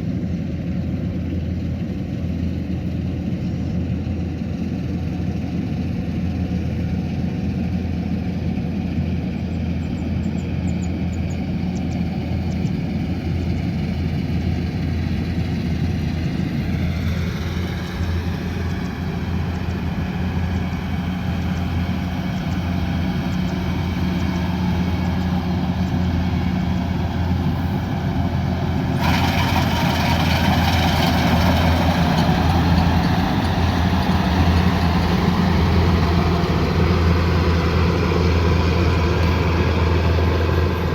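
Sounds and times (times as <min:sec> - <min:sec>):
diesel engine humming: 0:00.2 - 0:40.9
hissing whir: 0:16.6 - 0:35.4.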